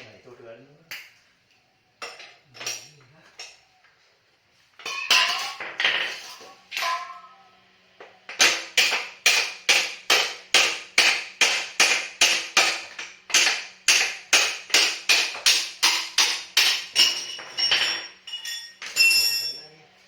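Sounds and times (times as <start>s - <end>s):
hammer striking metal: 8.3s - 19.6s.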